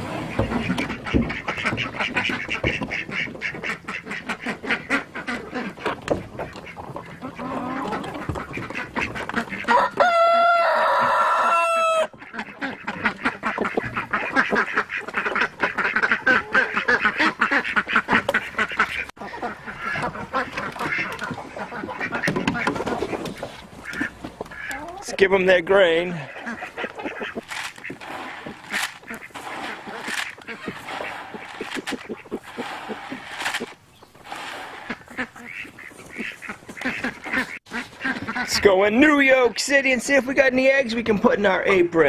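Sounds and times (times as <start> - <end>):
chickens clucking: 0.0 - 42.0
ducks quacking: 0.0 - 42.0
rooster crowing: 9.7 - 12.1.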